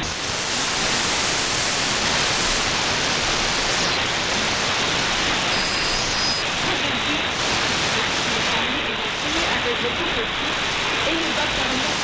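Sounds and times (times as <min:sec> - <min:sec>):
radio static hiss: 0:00.0 - 0:12.0
faint high whistle: 0:05.5 - 0:06.4.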